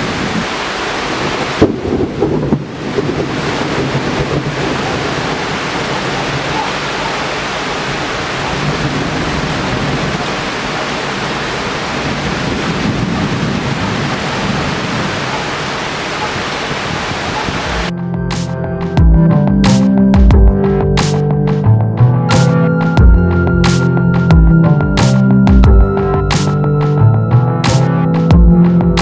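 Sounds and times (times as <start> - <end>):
heavy rain pouring: 0.0 - 18.0
music: 17.9 - 29.0.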